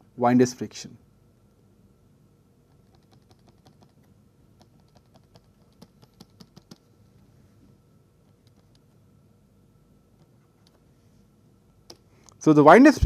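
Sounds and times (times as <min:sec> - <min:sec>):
faint steady hum: 0:00.0 - 0:13.0
faint clicks and taps: 0:02.7 - 0:06.9, 0:08.2 - 0:09.0, 0:10.1 - 0:10.8.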